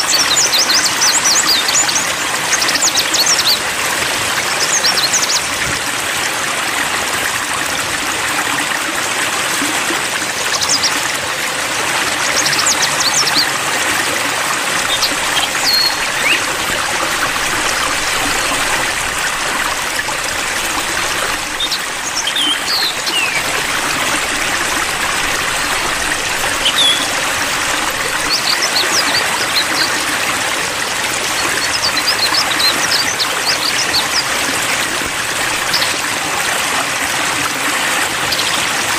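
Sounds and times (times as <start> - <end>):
trickling splashing water: 0.0 - 38.9
high bird chirps: 14.8 - 18.6, 21.0 - 23.6, 26.6 - 27.2.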